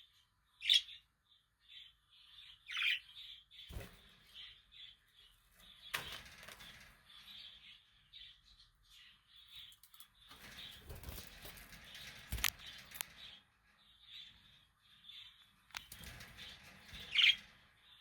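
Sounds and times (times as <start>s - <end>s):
sharp rustle or knock: 10.3s - 13.4s.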